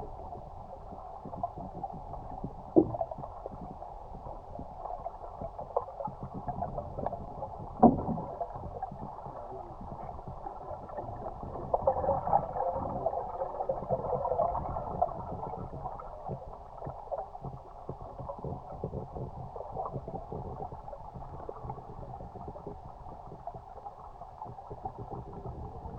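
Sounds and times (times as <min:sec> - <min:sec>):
muffled water sloshing: 0:00.0 - 0:25.9.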